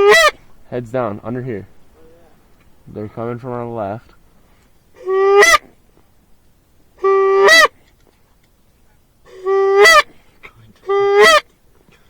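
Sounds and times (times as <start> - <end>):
goose call honks: 0.0 - 0.4, 5.0 - 5.7, 7.0 - 7.7, 9.3 - 10.1, 10.8 - 11.5.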